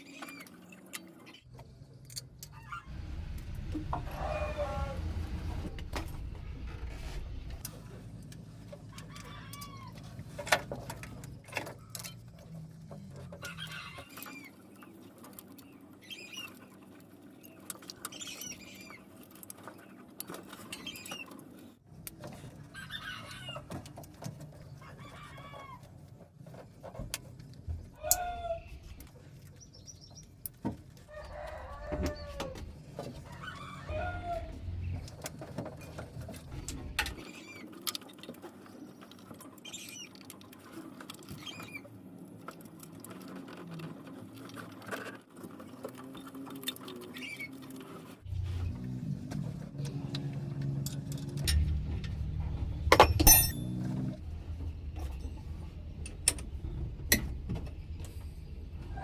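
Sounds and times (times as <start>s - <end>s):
low hum: 1.5s - 8.8s.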